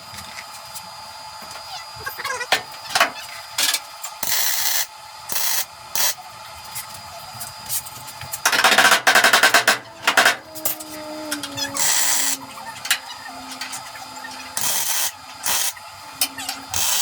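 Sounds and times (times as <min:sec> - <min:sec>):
welder crackling hiss: 0:04.2 - 0:06.2, 0:14.6 - 0:15.8, 0:16.7 - 0:17.0.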